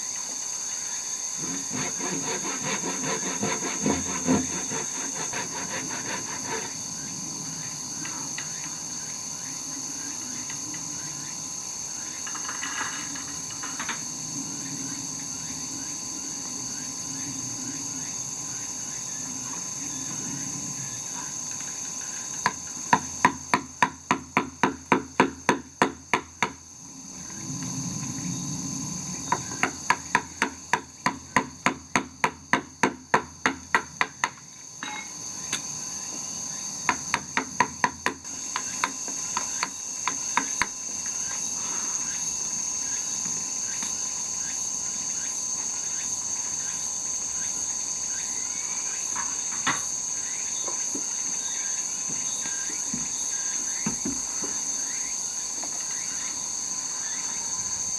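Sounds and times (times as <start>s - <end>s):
high-pitched insect chorus: 0.0s - 57.9s
hammer blows: 1.4s - 6.8s.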